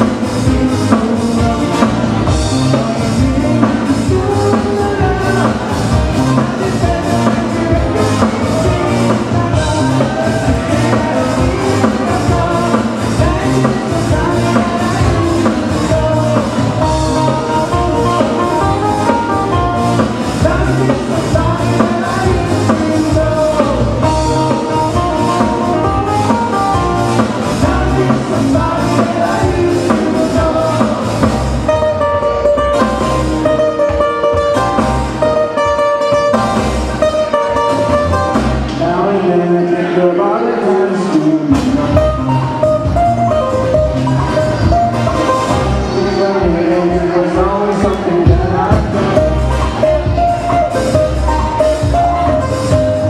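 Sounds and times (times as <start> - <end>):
live band playing: 0.0 - 53.0.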